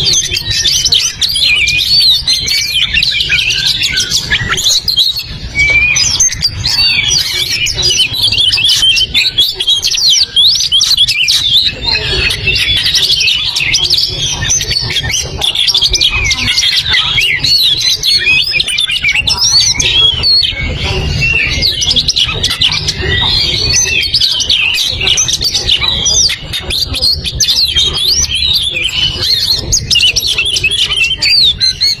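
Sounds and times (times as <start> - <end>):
bird singing whistled phrases: 0.0 - 32.0.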